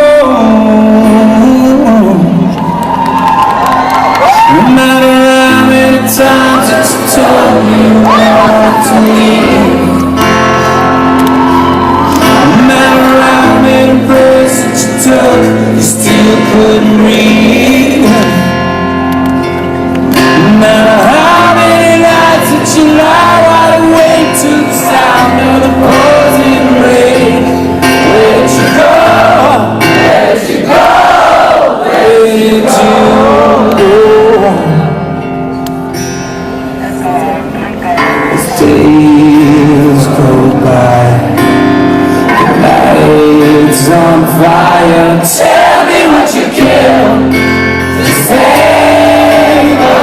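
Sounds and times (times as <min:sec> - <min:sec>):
person singing: 0:00.0 - 0:02.6, 0:04.2 - 0:35.6, 0:36.8 - 0:50.0
live rock concert music: 0:00.0 - 0:50.0.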